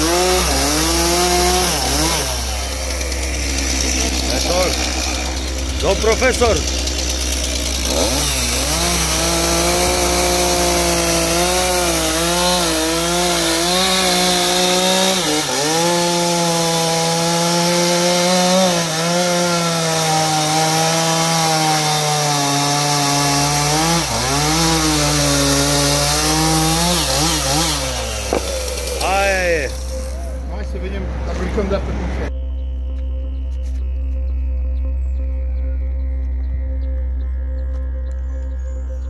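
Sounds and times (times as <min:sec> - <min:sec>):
chainsaw cutting wood: 0:00.0 - 0:30.4.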